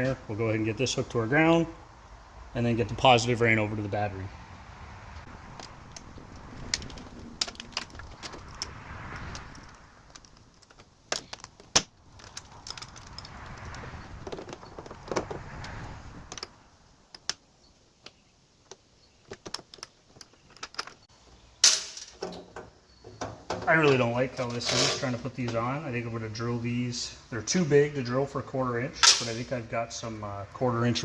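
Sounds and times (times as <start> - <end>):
rustling: 5.2 - 25.2.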